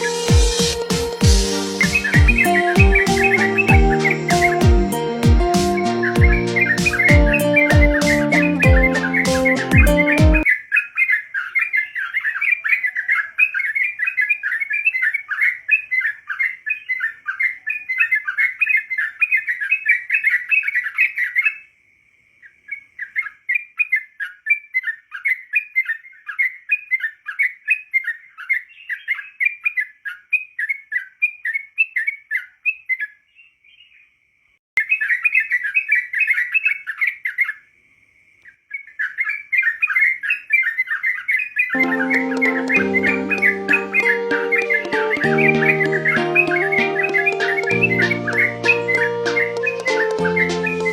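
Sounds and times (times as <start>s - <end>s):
bulbul singing: 0.0s - 14.6s, 40.9s - 50.9s.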